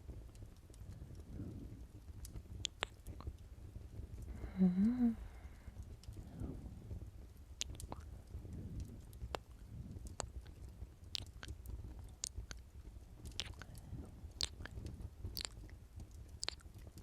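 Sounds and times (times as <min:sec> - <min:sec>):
low steady rumble: 0:00.0 - 0:17.0
wet lip smacks: 0:02.6 - 0:03.3, 0:07.6 - 0:08.1, 0:08.8 - 0:12.6, 0:13.2 - 0:15.6, 0:16.4 - 0:16.9.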